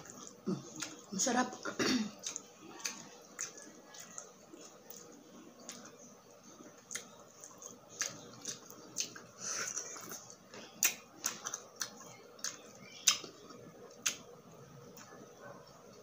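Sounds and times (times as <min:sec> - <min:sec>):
close chewing: 0:00.0 - 0:16.0
wet lip-smacking: 0:06.8 - 0:14.3.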